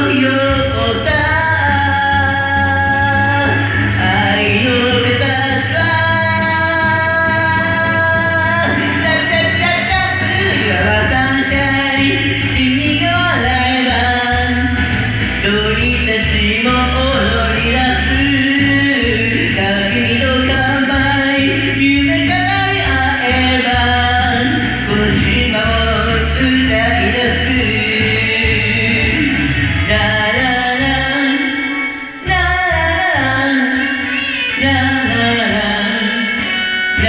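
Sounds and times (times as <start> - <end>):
person singing: 0.0 - 37.0
pop backing track with band: 0.0 - 37.0.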